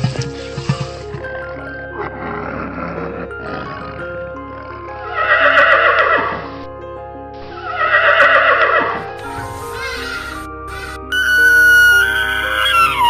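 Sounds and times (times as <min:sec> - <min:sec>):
background music: 0:00.0 - 0:13.0
horse whinnying: 0:04.7 - 0:06.4, 0:07.7 - 0:09.0, 0:09.7 - 0:13.0.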